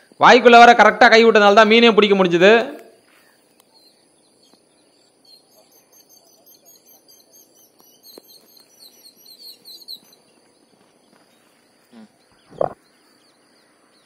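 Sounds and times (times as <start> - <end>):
faint bird chirping: 2.9 - 14.0.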